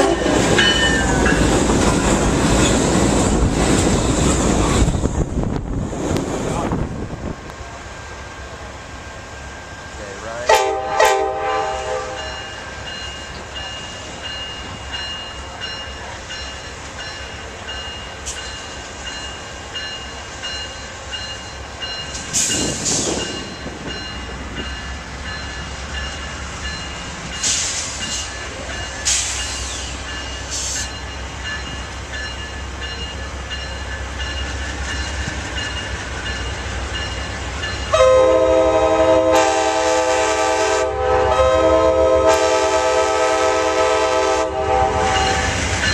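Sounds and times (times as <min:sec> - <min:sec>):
locomotive air horn: 0:00.0 - 0:00.4, 0:10.5 - 0:12.5, 0:37.9 - 0:45.5
train rumbling: 0:00.0 - 0:45.9.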